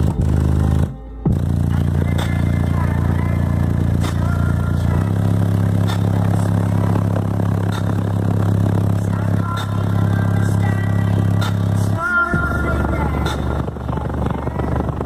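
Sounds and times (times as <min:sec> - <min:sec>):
deep sustained bass note: 0:00.0 - 0:15.0.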